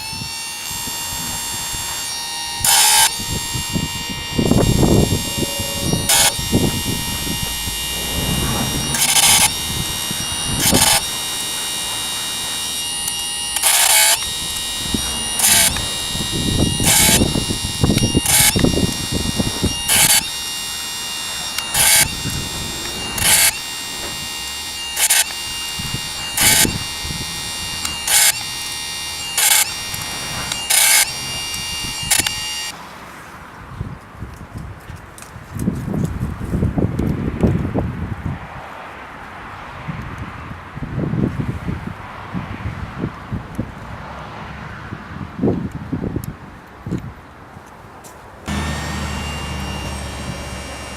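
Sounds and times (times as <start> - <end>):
grinding wheel rasping on chain: 0.0 - 32.8, 48.5 - 50.9
sharpener motor whining: 0.0 - 32.8, 48.5 - 50.9.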